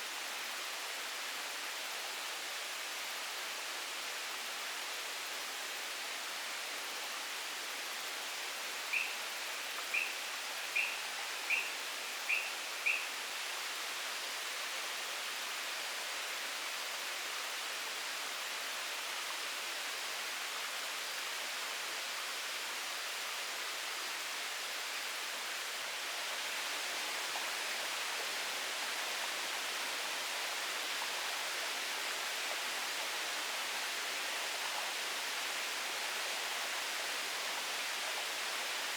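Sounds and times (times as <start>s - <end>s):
forest ambience hiss: 0.0s - 38.9s.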